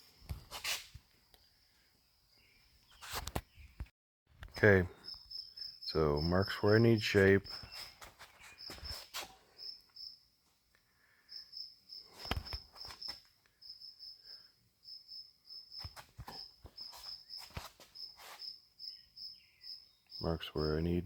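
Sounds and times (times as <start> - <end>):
insects chirping: 4.5 - 21.0.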